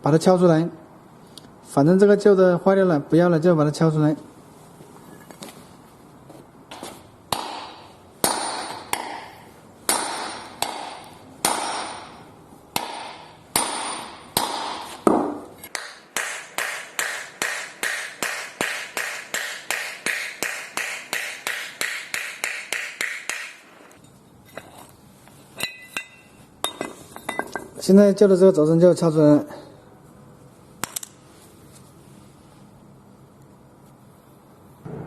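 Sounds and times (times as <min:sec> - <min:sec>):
hammer striking metal: 0:07.3 - 0:23.7.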